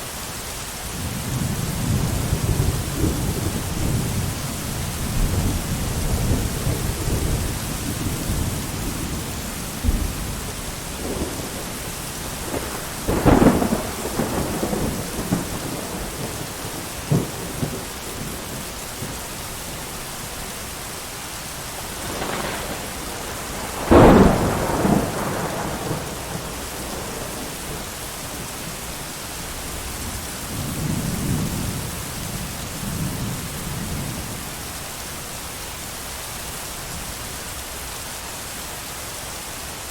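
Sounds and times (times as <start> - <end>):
heavy rain: 0.0 - 39.9
rolling thunder: 1.0 - 19.8, 21.7 - 28.8
sharp thunderclaps: 5.0 - 19.3, 21.8 - 28.4.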